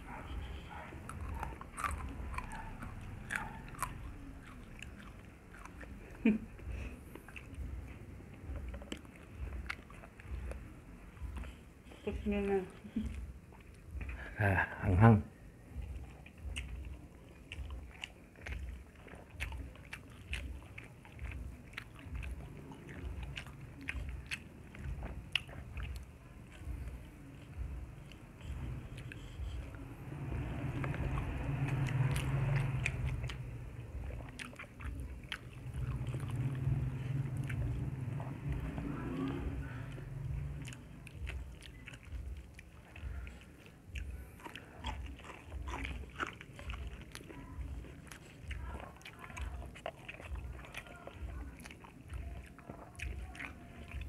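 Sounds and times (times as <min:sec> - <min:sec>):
chewing: 0:00.0 - 0:14.7, 0:15.6 - 0:54.0
wet lip smacks and clicks: 0:07.1 - 0:11.6, 0:30.4 - 0:54.0.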